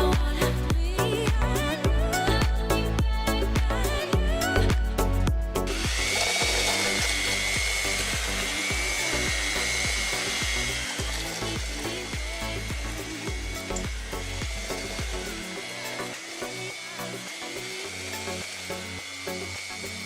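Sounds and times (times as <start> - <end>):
background music with beat: 0.0 - 20.0
small motorised tool whirring: 5.6 - 20.0.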